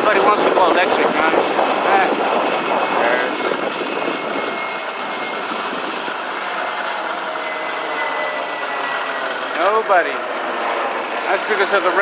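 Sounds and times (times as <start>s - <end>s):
small gas engine running: 0.0s - 12.0s.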